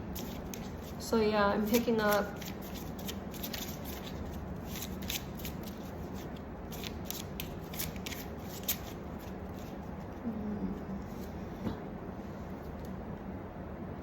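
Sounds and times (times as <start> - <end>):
steady low hum: 0.0 - 14.0
cards being shuffled: 0.2 - 1.0, 1.6 - 9.8.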